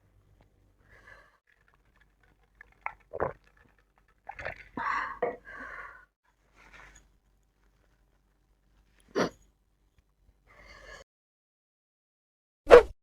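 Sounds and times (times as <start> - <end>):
breathy chewing and slurping: 1.4 - 5.5
wet mouth clicks: 1.7 - 4.8.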